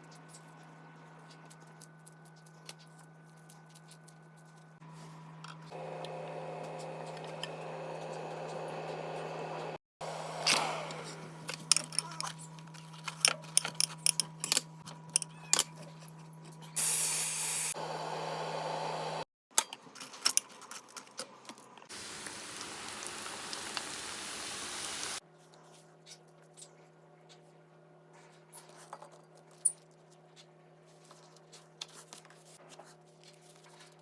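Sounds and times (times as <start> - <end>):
loud hiss: 16.8 - 17.8, 21.9 - 25.2.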